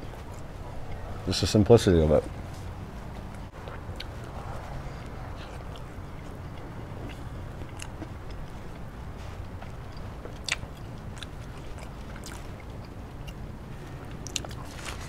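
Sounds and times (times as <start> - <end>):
mouth chewing: 3.3 - 15.0.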